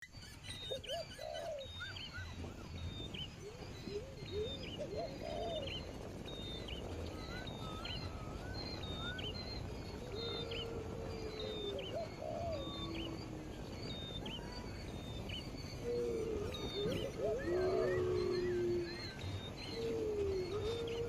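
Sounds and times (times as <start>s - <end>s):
birds whistling and chirping: 0.0s - 21.0s.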